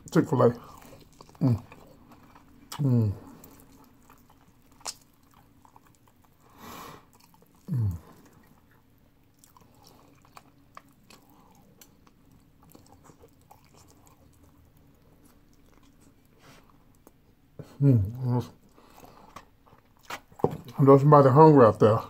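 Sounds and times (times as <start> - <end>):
mouth chewing sounds: 0.0 - 20.8
person humming mm: 7.7 - 8.1.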